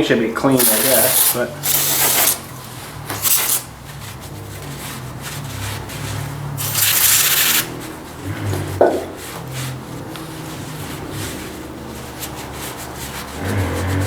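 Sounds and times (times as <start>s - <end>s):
handling noises: 0.5s - 14.0s
aerosol spray hissing: 0.6s - 2.5s, 3.2s - 3.7s, 6.6s - 8.1s.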